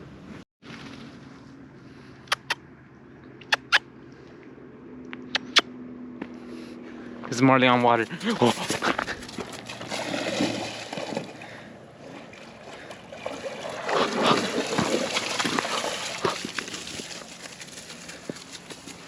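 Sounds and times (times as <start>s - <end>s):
dog splashing through shallow water: 8.1s - 19.0s.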